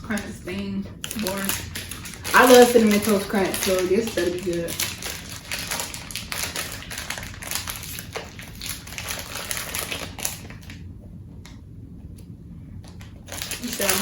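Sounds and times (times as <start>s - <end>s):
plastic wrapper crinkling and tearing: 1.0s - 10.8s, 12.9s - 14.0s.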